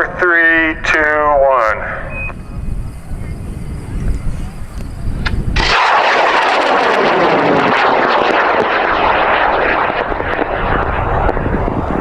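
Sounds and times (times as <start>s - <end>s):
rocket motor burning: 4.4s - 12.0s.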